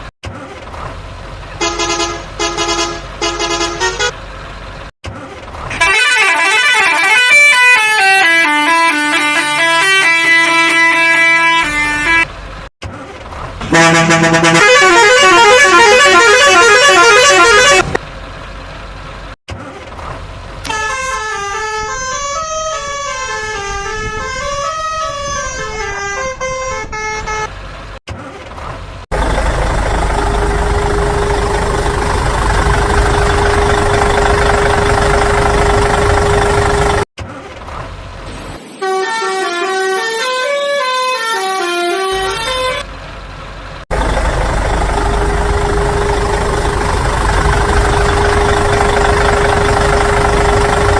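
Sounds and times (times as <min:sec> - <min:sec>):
engine running with hum: 0:00.0 - 0:06.6, 0:11.0 - 0:38.5, 0:42.0 - 0:50.9
melodic vehicle horn: 0:01.6 - 0:04.2, 0:05.7 - 0:12.3, 0:13.6 - 0:18.0, 0:20.7 - 0:27.5, 0:38.8 - 0:42.8.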